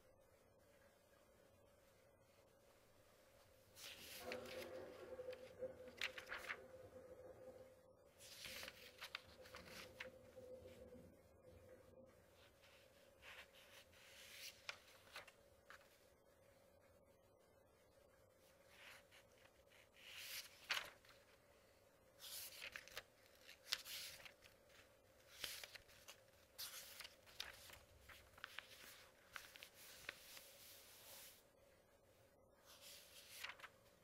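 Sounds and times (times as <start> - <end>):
faint steady hum: 0.0 - 34.0
paper pages turning: 3.7 - 7.6, 8.2 - 10.9, 12.3 - 16.1, 18.5 - 31.5, 32.6 - 34.0.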